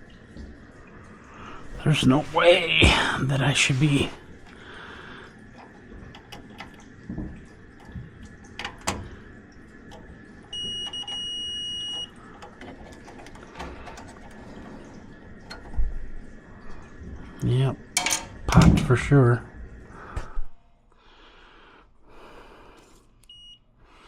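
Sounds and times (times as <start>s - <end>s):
tools clicking and knocking: 18.0s - 18.7s.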